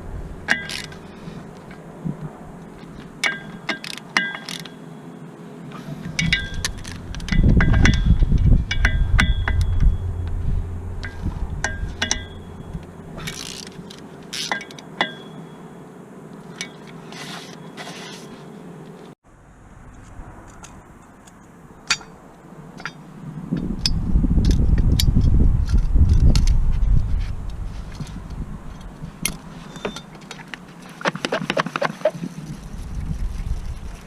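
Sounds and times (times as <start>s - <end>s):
low rumble of handling: 0.0s - 3.7s, 5.7s - 15.4s, 16.3s - 34.0s
metal tools clinking and scraping: 0.5s - 1.8s, 2.8s - 4.8s, 5.8s - 10.0s, 11.0s - 15.5s, 27.7s - 31.9s.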